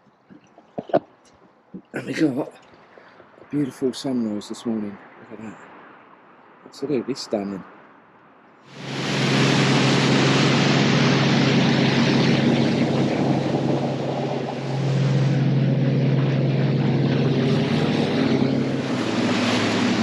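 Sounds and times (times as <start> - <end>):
wind: 0.0 - 20.0
motorboat engine drone: 8.7 - 20.0.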